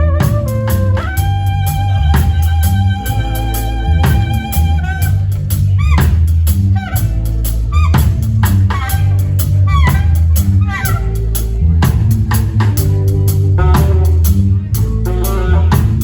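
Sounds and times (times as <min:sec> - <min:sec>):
saxophone solo: 0:00.0 - 0:11.2
bass groove: 0:00.0 - 0:16.0
drum kit: 0:00.0 - 0:16.0.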